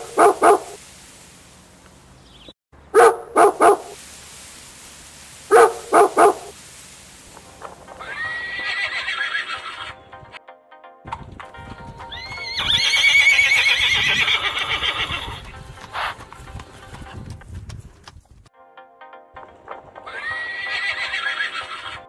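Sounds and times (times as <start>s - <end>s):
small dog barking: 0.0s - 0.8s, 2.9s - 4.0s, 5.5s - 6.5s
horse whinnying: 8.0s - 10.0s, 12.1s - 16.2s, 20.1s - 22.0s.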